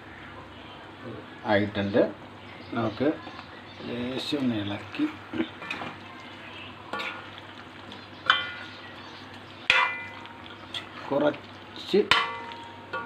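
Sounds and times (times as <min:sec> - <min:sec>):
curry sizzling in pot: 0:02.2 - 0:13.0
spoon clinking against pot: 0:08.2 - 0:08.7, 0:09.7 - 0:10.4.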